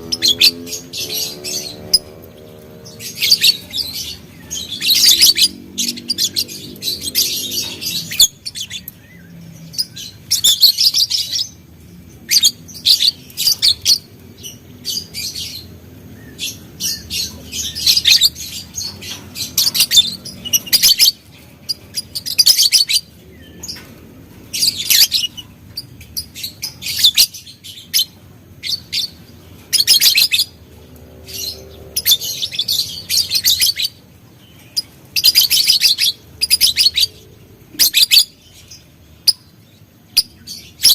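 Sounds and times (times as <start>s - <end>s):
lovebird chirping: 0.0s - 23.9s, 24.5s - 30.6s, 31.2s - 40.9s.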